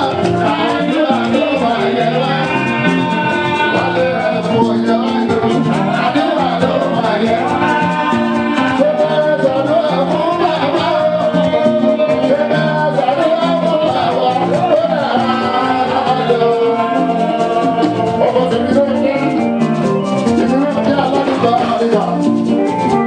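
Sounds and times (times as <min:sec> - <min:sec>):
lead vocalist singing: 0:00.0 - 0:23.0
live band playing: 0:00.0 - 0:23.0
shaker percussion: 0:00.0 - 0:23.0.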